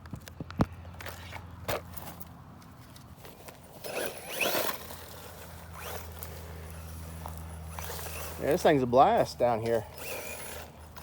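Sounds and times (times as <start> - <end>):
tyres scrabbling over dirt: 0.0 - 11.0
rc car motor whine: 3.7 - 11.0.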